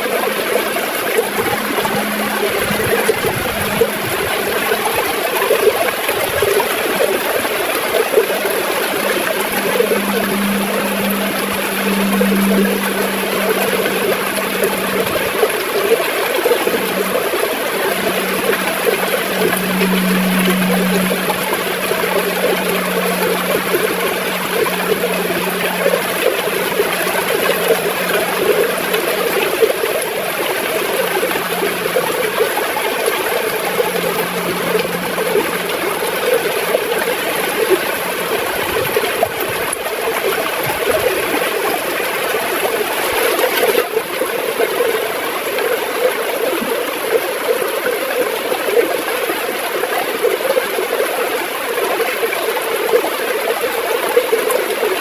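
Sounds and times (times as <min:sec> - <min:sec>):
river water gurgling: 0:00.0 - 0:55.0.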